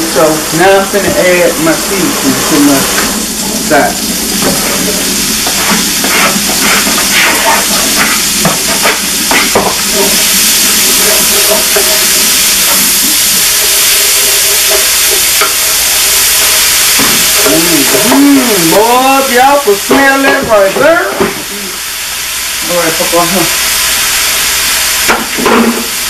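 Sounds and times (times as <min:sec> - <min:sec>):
sausage sizzling in a pot: 0:00.0 - 0:26.0
wooden spoon clattering and stirring: 0:04.4 - 0:12.9
peppers scraped off a plate: 0:05.5 - 0:08.2.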